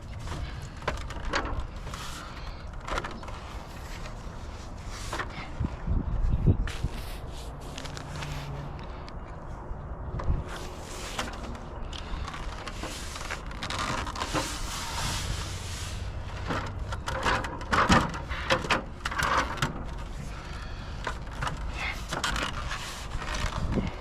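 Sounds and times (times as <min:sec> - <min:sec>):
wind buffeting microphone: 0:03.2 - 0:12.6, 0:22.6 - 0:24.0.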